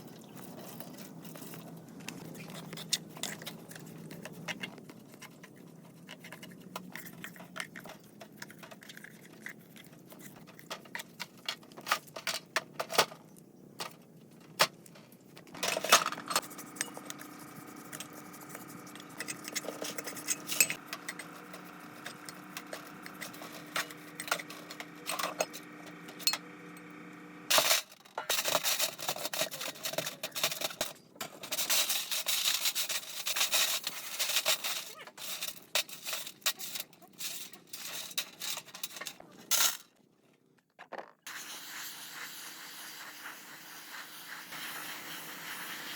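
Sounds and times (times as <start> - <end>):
small metal parts clinking: 0.0 - 4.8, 19.2 - 25.6, 27.5 - 40.0
faint steady hum: 0.0 - 40.7.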